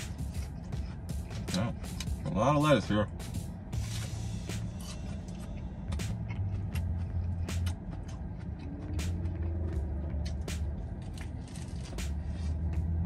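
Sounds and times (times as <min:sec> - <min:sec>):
low steady hum: 0:00.0 - 0:13.0
person chewing wet mouth clicks: 0:05.9 - 0:09.6.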